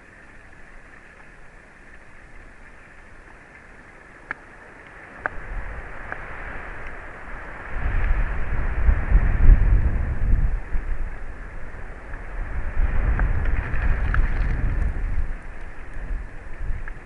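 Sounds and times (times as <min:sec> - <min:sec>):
wind buffeting microphone: 0:05.2 - 0:17.0.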